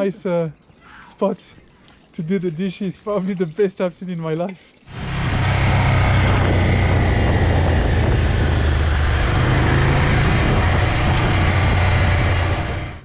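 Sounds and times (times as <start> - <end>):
loud wind rush: 4.9 - 13.0
motorcycle engine humming: 4.9 - 13.0.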